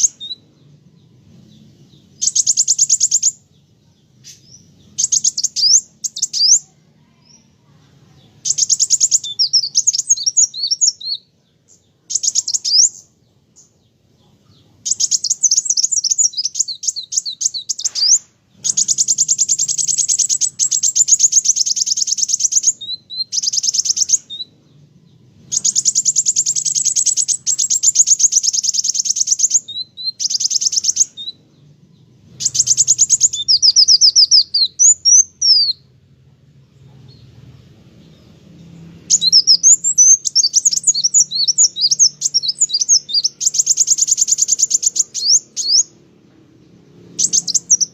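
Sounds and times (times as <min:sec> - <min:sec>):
sunbird singing high trills: 0:00.0 - 0:36.0, 0:37.1 - 0:47.9.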